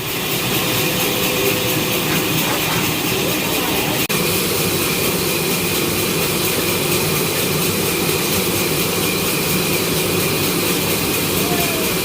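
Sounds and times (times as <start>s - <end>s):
sawmill saw whining: 0.0s - 12.0s.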